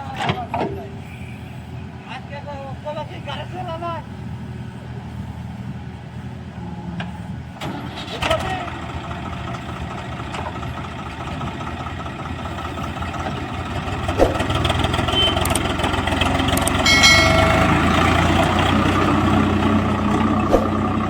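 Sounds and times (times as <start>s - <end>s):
diesel engines running: 0.0s - 21.0s
brief high-pitched tone: 16.9s - 18.5s.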